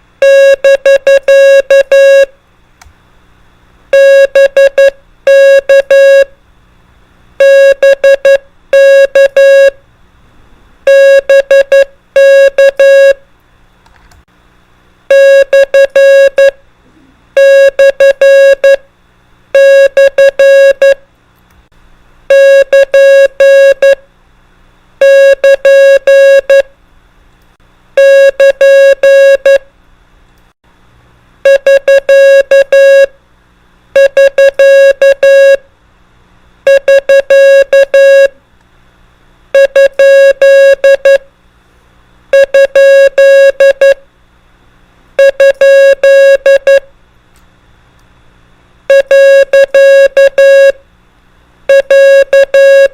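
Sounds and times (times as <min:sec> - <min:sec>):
morse code beeping tone: 0:00.2 - 0:02.3, 0:04.0 - 0:06.3, 0:07.4 - 0:09.8, 0:10.9 - 0:13.2, 0:15.1 - 0:16.6, 0:17.4 - 0:18.8, 0:19.6 - 0:21.0, 0:22.3 - 0:24.0, 0:25.0 - 0:26.7, 0:28.0 - 0:29.6, 0:31.5 - 0:33.1, 0:34.0 - 0:35.6, 0:36.7 - 0:38.4, 0:39.6 - 0:41.2, 0:42.4 - 0:44.0, 0:45.2 - 0:46.8, 0:48.9 - 0:50.8, 0:51.7 - 0:52.9.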